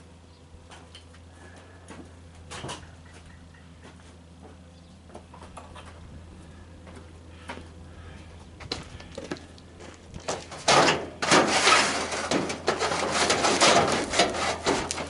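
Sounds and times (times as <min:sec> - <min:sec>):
rough scraping and rubbing: 0:10.3 - 0:15.0.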